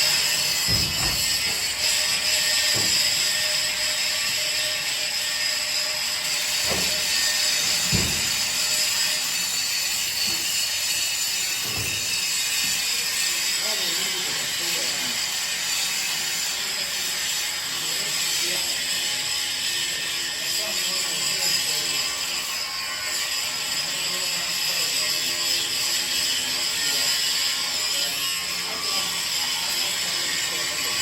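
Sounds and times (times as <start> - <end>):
dull knocks of metal parts: 0.0 - 3.4, 6.6 - 8.8, 11.6 - 12.3.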